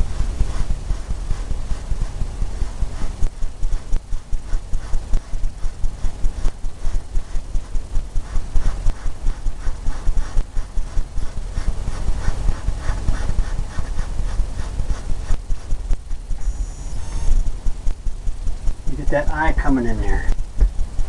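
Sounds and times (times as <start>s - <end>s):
paintbrush scrubbing on canvas: 0.0s - 16.1s.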